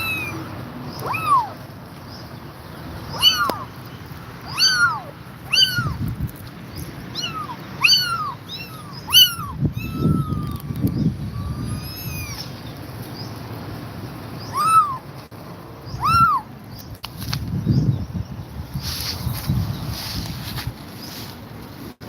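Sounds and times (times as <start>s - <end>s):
kittens mewing: 0.0s - 1.7s, 3.1s - 3.7s, 4.4s - 6.1s, 7.0s - 12.6s, 14.4s - 15.1s, 16.0s - 16.5s.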